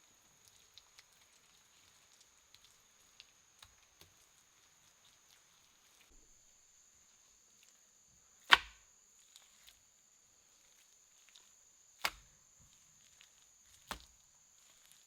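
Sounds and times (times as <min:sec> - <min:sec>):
sharp blows on wood: 0:08.5 - 0:08.8.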